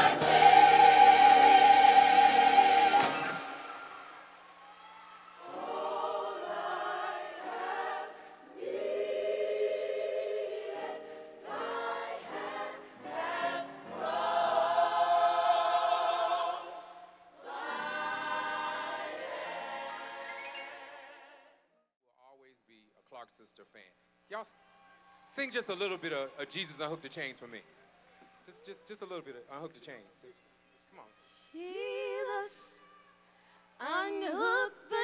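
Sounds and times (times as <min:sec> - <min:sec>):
gospel choir singing: 0:00.0 - 0:04.4, 0:05.3 - 0:21.6, 0:31.6 - 0:32.8.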